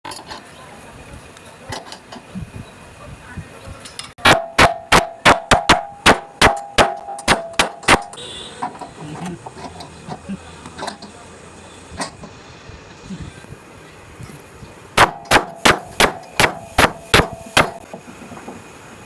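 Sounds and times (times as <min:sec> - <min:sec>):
hammer striking wooden door joint: 0:04.2 - 0:08.2, 0:15.0 - 0:17.8.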